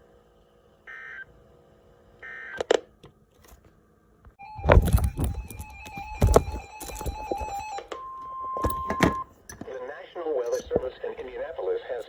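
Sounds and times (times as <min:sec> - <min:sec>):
crackling and thumping noise: 0:04.5 - 0:07.9.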